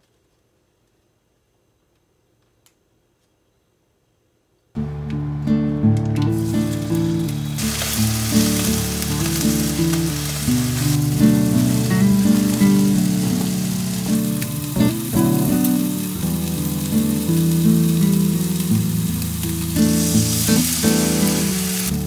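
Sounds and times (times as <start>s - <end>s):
background music held notes: 4.8s - 22.0s
food sizzling in a pan: 6.3s - 22.0s
liquid poured into hot pan: 6.3s - 22.0s.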